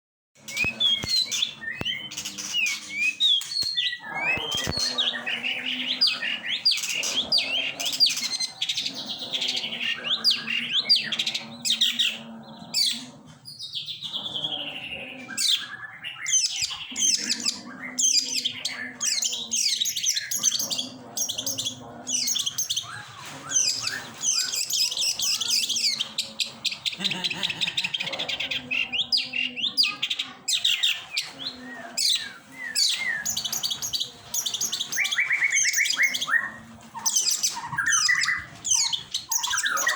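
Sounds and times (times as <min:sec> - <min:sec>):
shrike singing varied chirps: 0:00.4 - 0:39.9.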